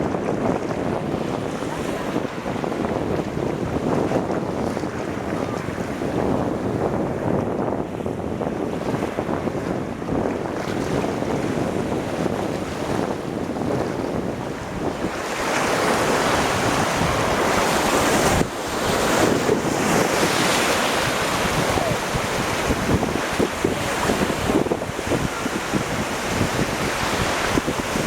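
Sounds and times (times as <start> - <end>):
sea waves splashing: 0.0 - 7.3, 7.9 - 28.0
wind buffeting the microphone: 0.0 - 28.0.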